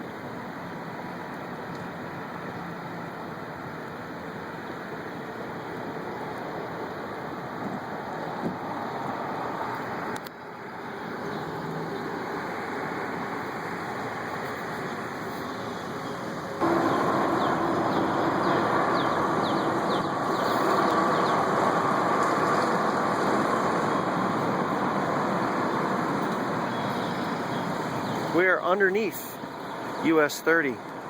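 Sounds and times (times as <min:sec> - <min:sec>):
engine running: 0:08.4 - 0:31.0
steady hum: 0:12.4 - 0:31.0
noise wash: 0:16.4 - 0:30.8.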